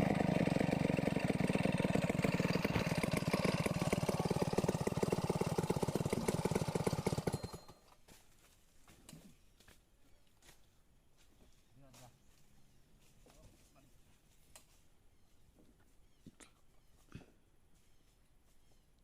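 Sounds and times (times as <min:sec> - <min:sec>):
chainsaw idling: 0:00.0 - 0:07.9.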